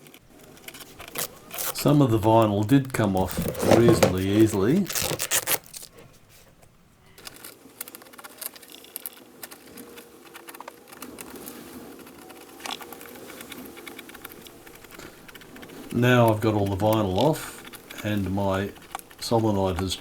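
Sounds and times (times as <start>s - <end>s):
faint steady hum: 0.0s - 20.0s
vinyl tearing from foam: 0.3s - 6.5s.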